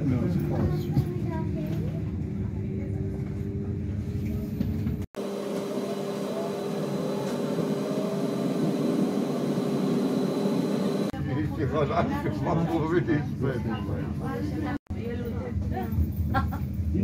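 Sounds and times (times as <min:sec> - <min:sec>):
train running noise: 0:03.2 - 0:11.1
faint rising whine: 0:05.2 - 0:11.1.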